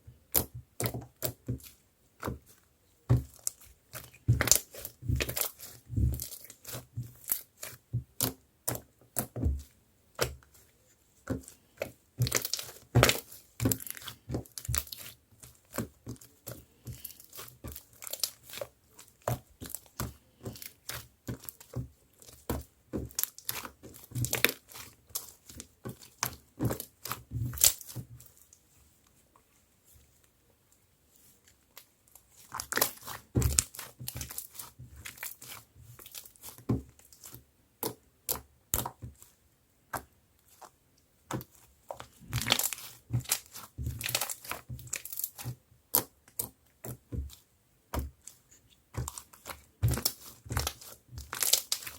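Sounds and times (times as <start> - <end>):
slime squished by hand: 11.3 - 28.3, 31.2 - 39.3, 39.9 - 51.9.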